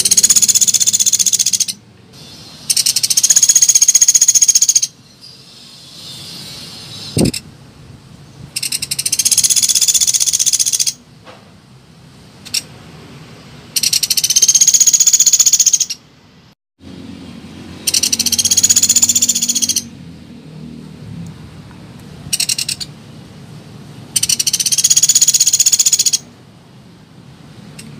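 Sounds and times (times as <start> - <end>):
woodpecker rattling trills: 0.0 - 1.8, 2.7 - 5.0, 8.6 - 11.0, 13.8 - 16.0, 17.8 - 19.9, 22.3 - 22.9, 24.1 - 26.2.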